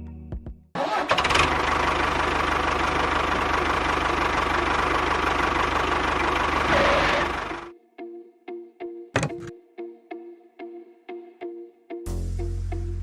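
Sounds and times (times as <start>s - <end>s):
engine running with low pulse: 0.8s - 7.7s.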